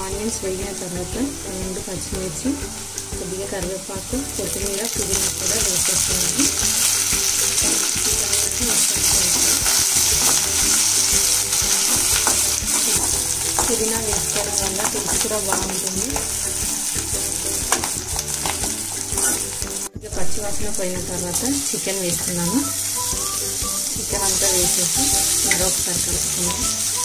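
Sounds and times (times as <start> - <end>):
vegetables sizzling in hot oil: 0.4 - 19.9, 20.9 - 27.0
metal spoon scraping pan: 19.0 - 19.6.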